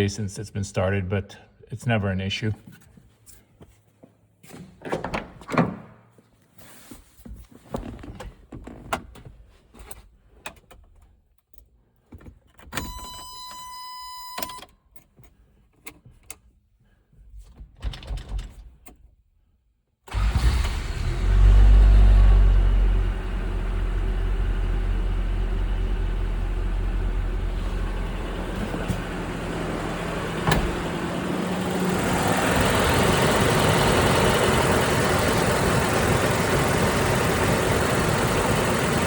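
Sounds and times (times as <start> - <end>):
engine starting and running: 20.1 - 39.0
handling knocks in car cab: 30.4 - 31.0.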